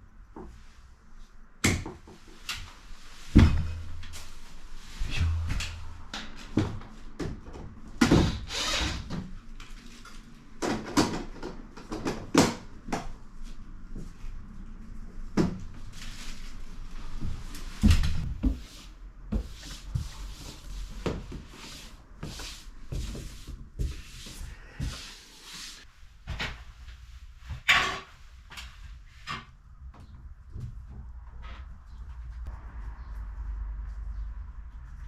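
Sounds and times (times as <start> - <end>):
loud thuds: 3.4 - 4.3, 5.0 - 6.3
tools knocking and scraping: 5.0 - 6.8.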